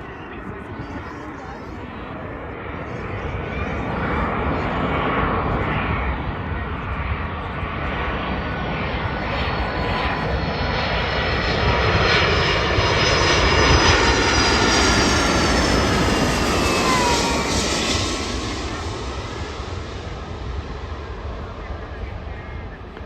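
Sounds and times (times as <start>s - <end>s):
airliner engines roaring: 0.0s - 23.0s
whining engine tones: 11.8s - 19.6s.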